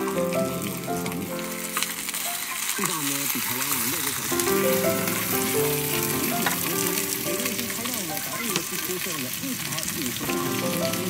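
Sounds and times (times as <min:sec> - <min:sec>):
background music: 0:00.0 - 0:02.7, 0:04.3 - 0:08.4, 0:10.2 - 0:11.0
food sizzling in a pan: 0:00.0 - 0:11.0.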